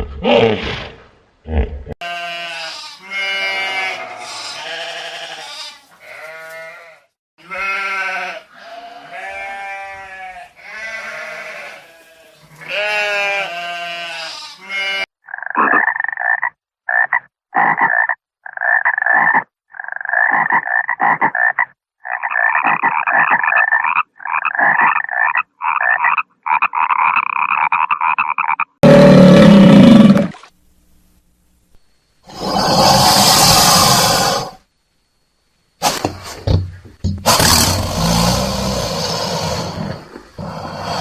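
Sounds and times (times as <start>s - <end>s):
frog croaking: 15.2s - 30.4s
long animal calls: 32.2s - 34.6s.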